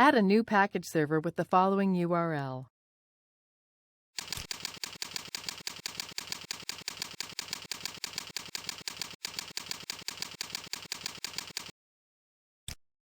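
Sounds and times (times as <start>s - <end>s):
keyboard typing: 4.2s - 11.7s.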